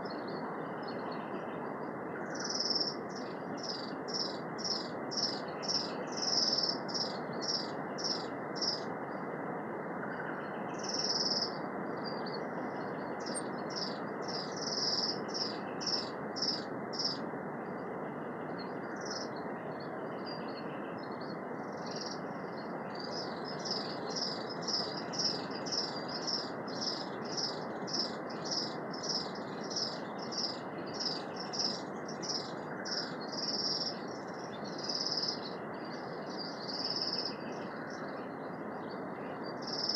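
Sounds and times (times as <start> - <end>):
steady rushing hiss: 0.0 - 39.9
small birds chirping: 23.0 - 35.6.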